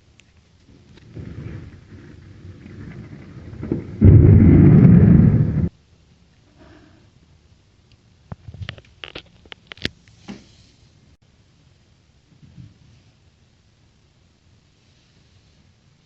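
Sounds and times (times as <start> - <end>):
loud thunderclap: 0.8 - 5.7.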